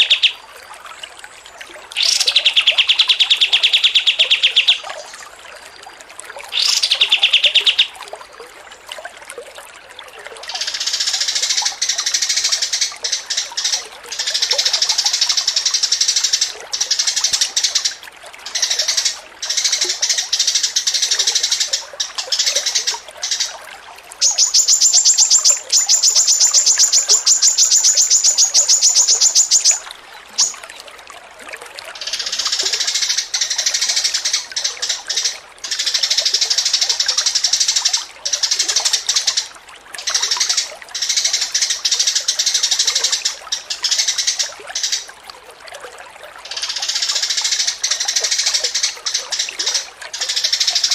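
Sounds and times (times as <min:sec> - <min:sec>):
songbirds singing: 0:00.0 - 0:00.4, 0:01.9 - 0:05.4, 0:06.5 - 0:07.9, 0:10.4 - 0:30.8
fast rattling bird trill: 0:24.2 - 0:29.8, 0:30.4 - 0:30.6.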